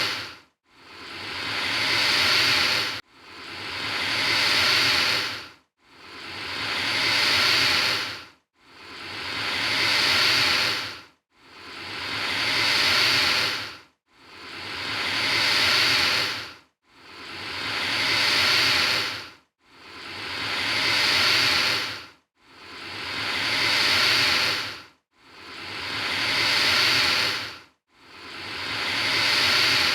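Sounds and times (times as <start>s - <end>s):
alligator hissing: 0.0s - 0.3s, 0.9s - 3.0s, 3.6s - 5.4s, 6.1s - 8.2s, 8.8s - 11.0s, 11.7s - 13.7s, 14.4s - 16.5s, 17.1s - 19.2s, 20.0s - 22.0s, 22.7s - 24.8s, 25.4s - 27.5s, 28.3s - 29.9s.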